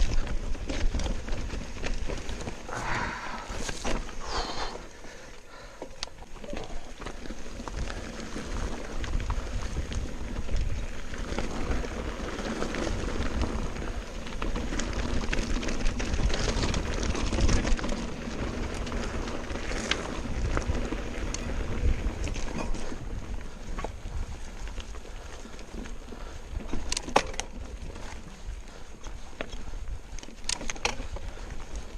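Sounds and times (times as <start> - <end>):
bike rattling: 0.0 - 31.9
bike tyres rumbling on trail: 0.0 - 31.9
wind buffeting microphone: 7.6 - 26.9.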